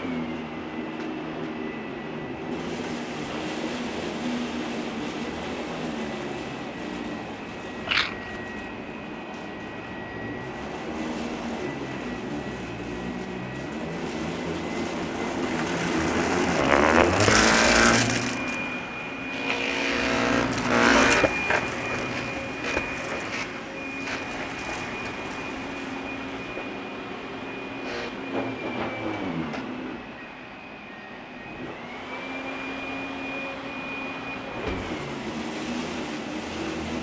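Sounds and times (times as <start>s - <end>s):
vacuum cleaner motor whine: 0.0s - 37.0s
vacuum rushing surges: 15.6s - 18.8s.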